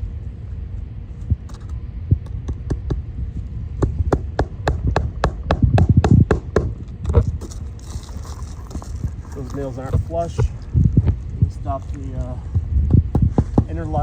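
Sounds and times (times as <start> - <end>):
hammer driving nails into shingles: 13.2 - 13.8.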